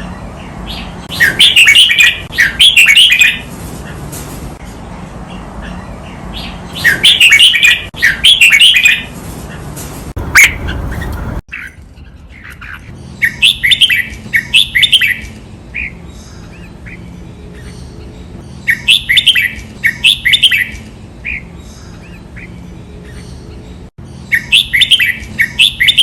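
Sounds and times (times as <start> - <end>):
bird singing chirped phrases: 11.6 - 26.0.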